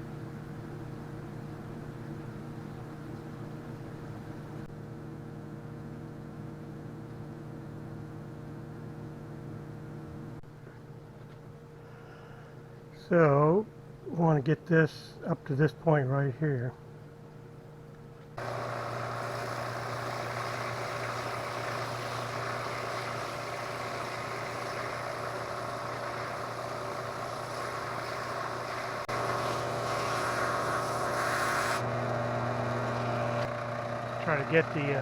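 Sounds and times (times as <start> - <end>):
power tool cutting wood: 18.4 - 35.0.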